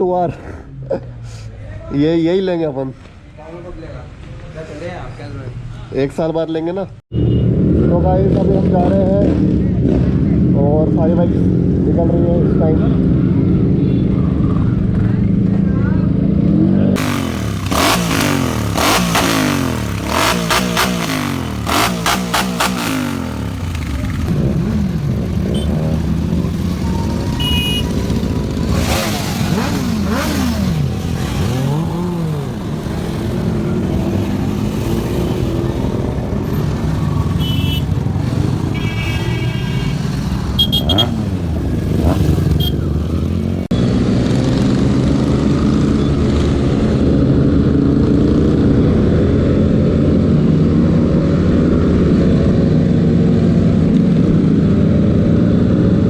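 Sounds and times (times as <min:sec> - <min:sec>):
motorbike engines revving: 0:07.1 - 0:56.0
short high beeps: 0:26.8 - 0:28.0.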